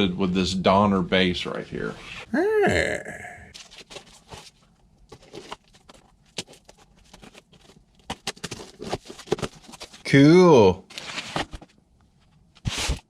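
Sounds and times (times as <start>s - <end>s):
packaging rustling: 3.5s - 10.0s
cardboard box being opened: 3.6s - 10.0s, 10.9s - 11.7s, 12.6s - 13.0s.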